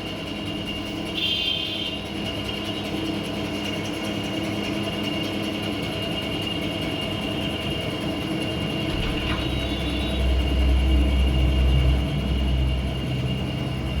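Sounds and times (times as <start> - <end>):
low rumble: 8.9 - 14.0.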